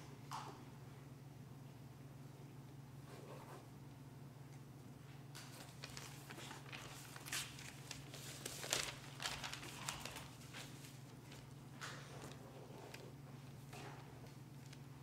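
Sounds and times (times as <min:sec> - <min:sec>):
low electrical hum: 0:00.0 - 0:15.0
rustling and shuffling: 0:05.4 - 0:15.0.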